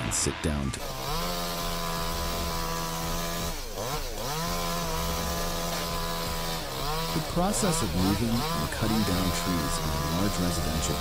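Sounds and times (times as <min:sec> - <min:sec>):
chainsaw engine revving: 0:00.7 - 0:11.0.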